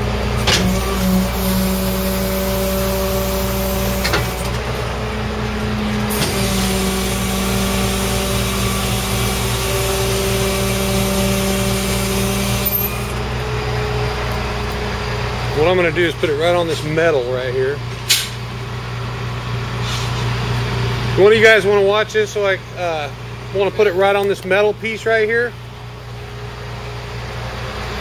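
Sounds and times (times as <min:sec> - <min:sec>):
truck engine running: 0:00.0 - 0:28.0
hydraulic hiss: 0:06.1 - 0:13.2.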